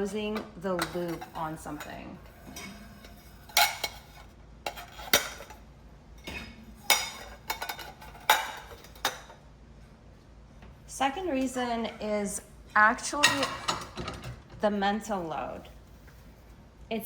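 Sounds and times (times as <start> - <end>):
dishes and cutlery clinking: 0.2 - 5.6, 6.2 - 9.4, 13.2 - 14.4.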